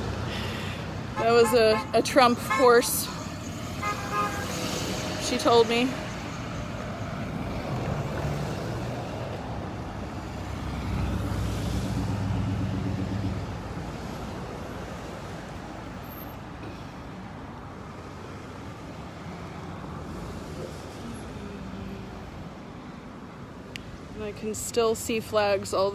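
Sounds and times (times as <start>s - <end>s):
passing engine hum: 0.0s - 15.5s
cars and trucks driving past: 0.0s - 25.9s.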